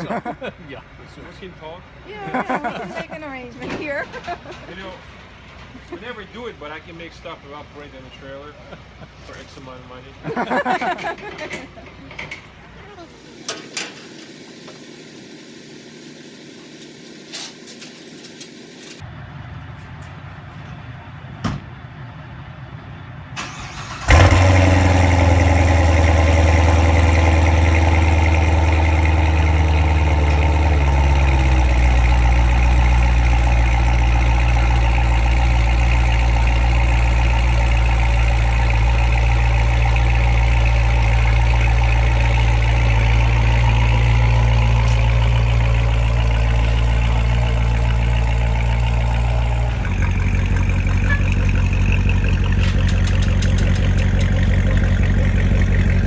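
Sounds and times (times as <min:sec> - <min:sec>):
car engine starting and idling: 0:12.4 - 0:19.6, 0:22.6 - 0:56.0.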